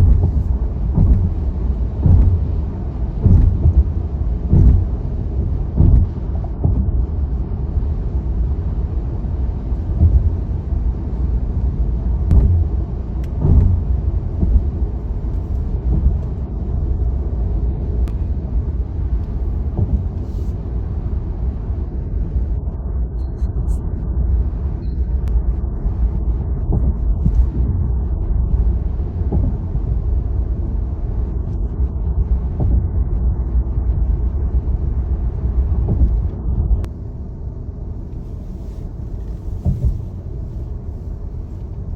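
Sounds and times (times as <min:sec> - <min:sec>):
tyre and road noise: 0:00.0 - 0:21.8, 0:25.3 - 0:37.0, 0:37.8 - 0:41.9
brief thumps: 0:12.3 - 0:12.8.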